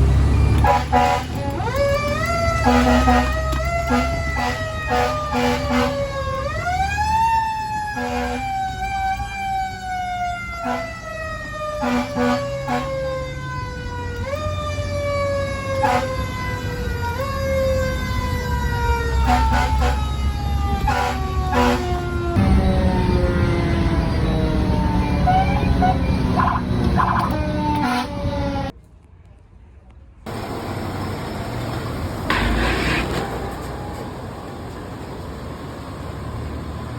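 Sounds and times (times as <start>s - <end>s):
fire engine mechanical siren: 0.0s - 28.8s
diesel engine rumbling: 0.0s - 36.9s
air horn blasts: 0.6s - 1.7s, 2.6s - 6.2s, 7.9s - 8.5s, 10.6s - 11.0s, 11.8s - 13.1s, 15.8s - 16.3s, 19.2s - 20.2s, 20.8s - 22.0s, 25.2s - 28.3s.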